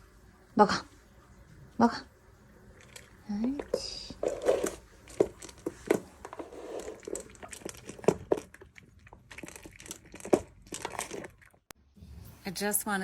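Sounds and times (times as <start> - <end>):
dog chewing and crunching food: 2.7 - 11.7.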